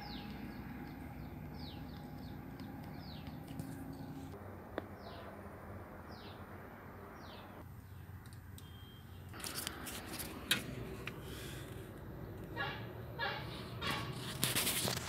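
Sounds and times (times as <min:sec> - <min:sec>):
bird chirping: 0:00.0 - 0:05.4, 0:06.0 - 0:09.4.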